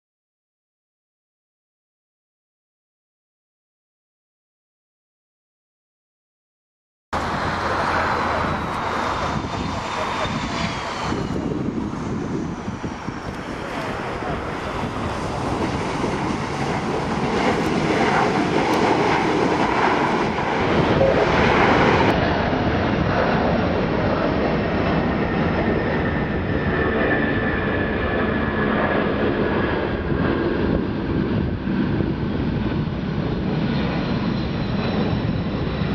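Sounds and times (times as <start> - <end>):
jet engine roar: 7.2 - 35.9
jet engine whine falling in pitch: 7.2 - 35.9.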